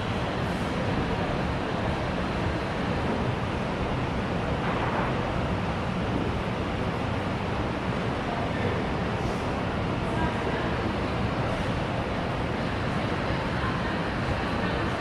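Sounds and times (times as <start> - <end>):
babble of many voices: 7.6 - 15.0.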